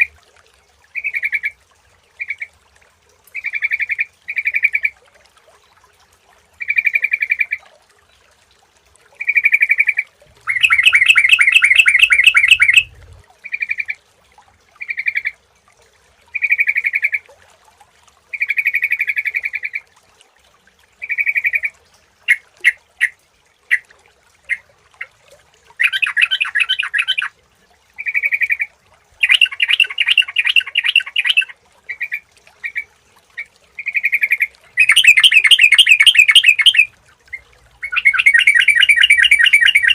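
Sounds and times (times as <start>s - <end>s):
bulbul singing: 9.2s - 13.1s, 29.2s - 31.5s, 33.8s - 36.9s, 37.8s - 39.9s
bird rapid chattering: 10.5s - 13.0s, 29.2s - 31.4s, 33.9s - 36.9s, 37.8s - 39.9s.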